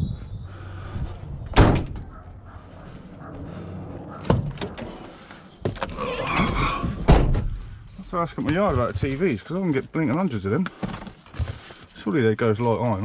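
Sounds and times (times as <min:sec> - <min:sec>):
van doors slamming: 0:01.5 - 0:02.2, 0:07.0 - 0:07.6.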